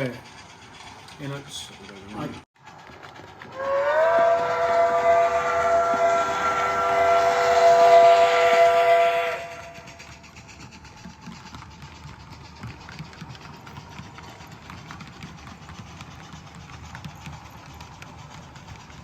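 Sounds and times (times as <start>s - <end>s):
steam locomotive whistle: 3.5s - 10.2s.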